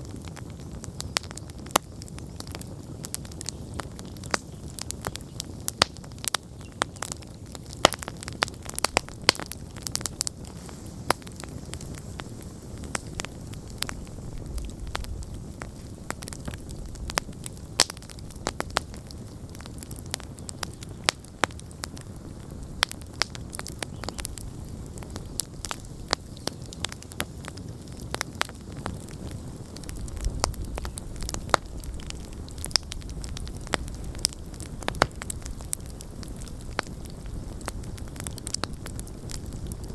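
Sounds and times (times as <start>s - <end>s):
campfire crackling and popping: 0.0s - 39.9s
flames rumbling: 0.0s - 39.9s.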